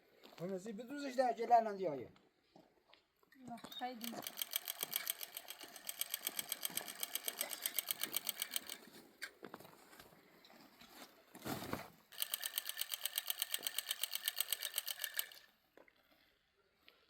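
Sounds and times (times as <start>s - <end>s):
rapid mechanical rattling: 4.0s - 8.9s, 12.1s - 15.4s.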